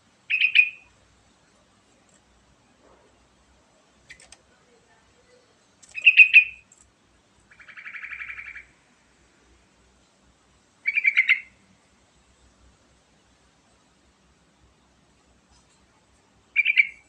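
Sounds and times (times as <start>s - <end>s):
soft fast bird trill: 0.3s - 0.9s, 5.9s - 6.7s, 10.8s - 11.6s, 16.6s - 17.0s.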